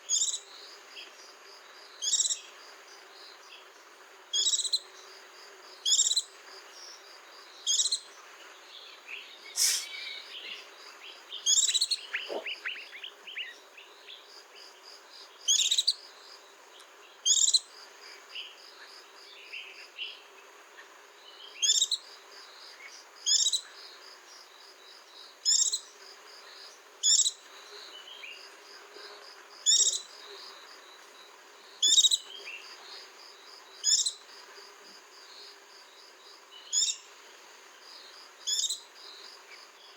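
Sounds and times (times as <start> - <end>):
bird chirping: 8.8 - 14.3.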